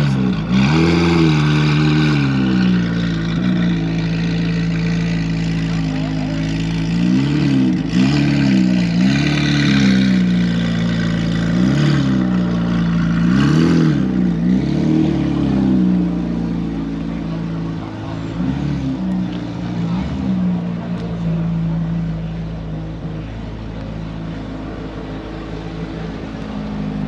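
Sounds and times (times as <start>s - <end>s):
car engine idling and revving: 0.0s - 27.0s.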